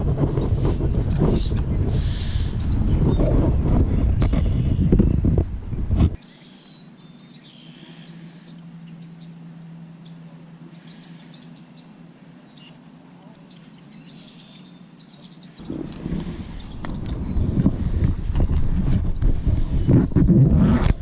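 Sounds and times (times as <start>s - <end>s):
steady low hum: 0.0s - 21.0s
faint bird chirps: 6.2s - 15.8s.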